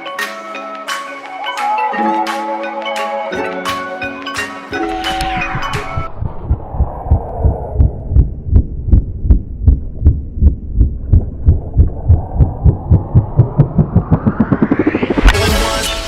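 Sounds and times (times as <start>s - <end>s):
low heartbeat-like thumps: 4.9s - 15.5s
rising swell: 11.2s - 16.0s.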